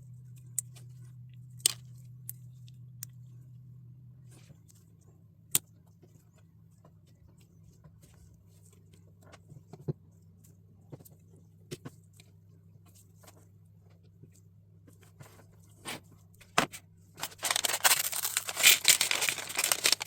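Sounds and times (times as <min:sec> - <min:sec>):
plastic pieces clicking: 0:17.2 - 0:20.0.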